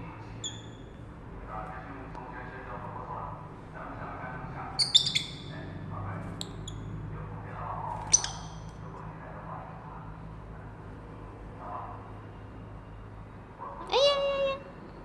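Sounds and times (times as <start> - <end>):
birds squawking: 4.8 - 5.7, 8.0 - 8.7.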